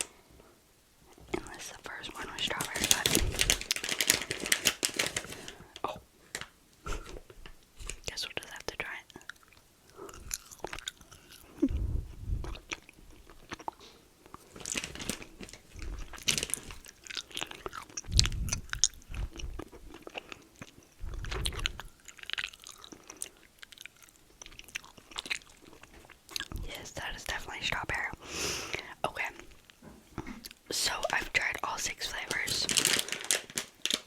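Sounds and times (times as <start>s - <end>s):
chewing crunchy snack: 9.1s - 26.7s, 32.3s - 34.0s.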